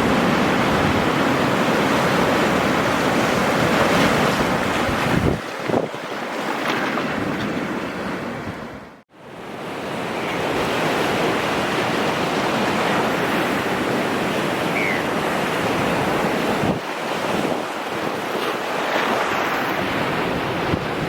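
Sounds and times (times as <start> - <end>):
wind on microphone: 0.0 - 6.0, 12.7 - 18.2, 19.7 - 21.0
ocean surf breaking: 0.0 - 21.0.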